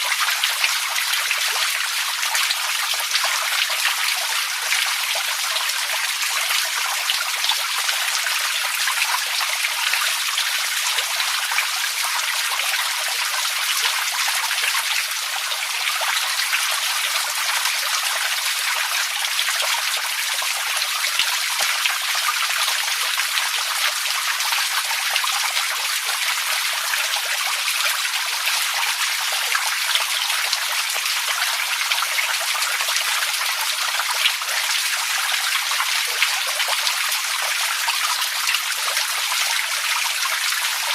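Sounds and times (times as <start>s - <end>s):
water running and splashing: 0.0s - 40.9s.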